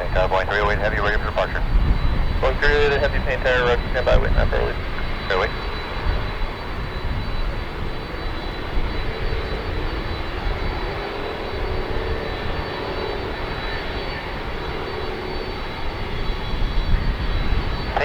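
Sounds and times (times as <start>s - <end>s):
jet engines running at low power: 0.0s - 18.0s.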